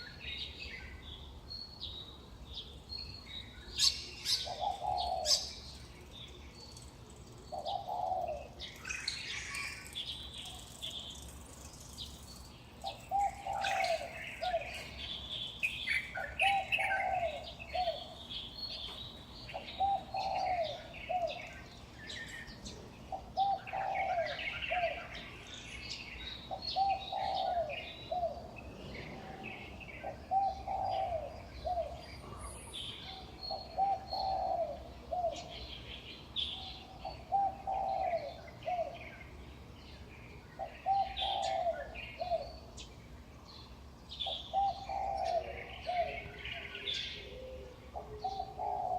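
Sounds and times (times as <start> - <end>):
small birds chirping: 0.0 - 48.9
dove cooing: 3.8 - 5.8, 7.4 - 11.3, 12.8 - 18.3, 19.5 - 25.6, 26.4 - 32.4, 33.1 - 35.8, 36.5 - 39.3, 40.6 - 42.7, 44.2 - 48.9.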